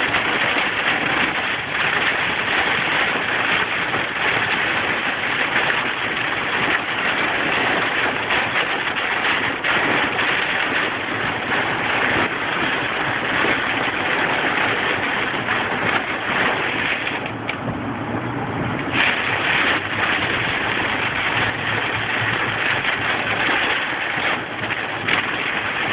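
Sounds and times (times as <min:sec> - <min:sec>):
hail and rain pelting: 0:00.0 - 0:17.6, 0:18.7 - 0:25.9.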